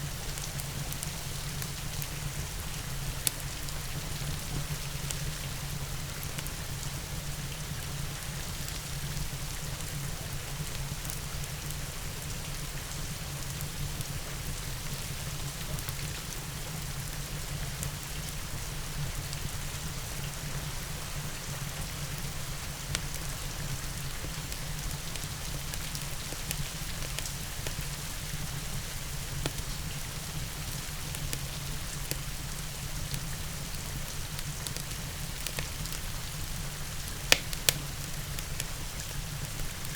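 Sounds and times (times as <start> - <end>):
steady rain: 0.0 - 39.9
wood fire crackling: 0.2 - 7.0, 24.3 - 39.9.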